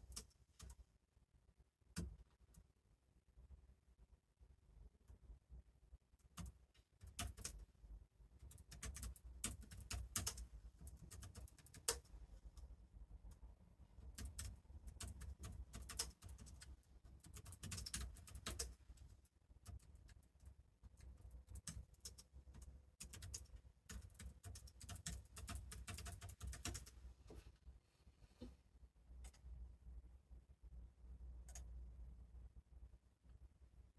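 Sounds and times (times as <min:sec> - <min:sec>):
typing on computer keyboard: 0:06.2 - 0:07.7, 0:08.4 - 0:12.1, 0:14.0 - 0:18.8, 0:19.6 - 0:27.0, 0:31.4 - 0:31.7
keyboard typing clicks: 0:31.4 - 0:31.7.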